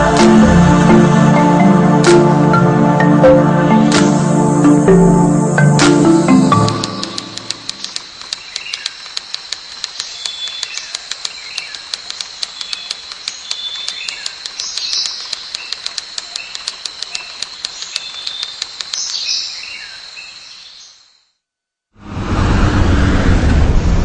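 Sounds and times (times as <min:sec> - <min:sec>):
birds chirping: 0:05.6 - 0:21.0
quick irregular clicking: 0:06.6 - 0:19.2.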